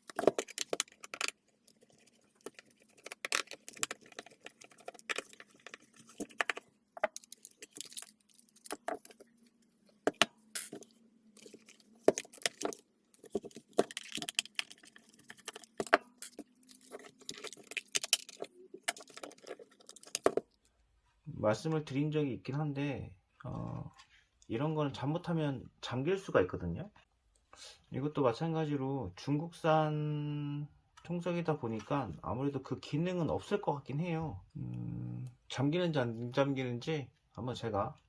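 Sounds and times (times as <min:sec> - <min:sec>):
plastic clicks and rattles: 0:00.0 - 0:20.6.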